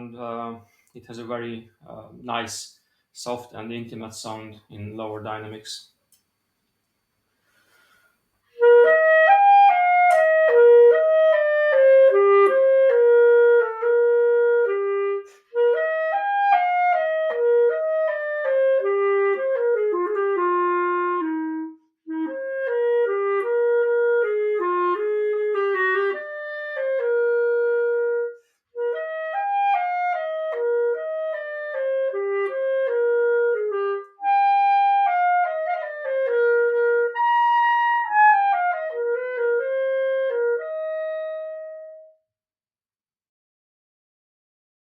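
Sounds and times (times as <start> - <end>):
clarinet legato melody: 8.5 - 42.3.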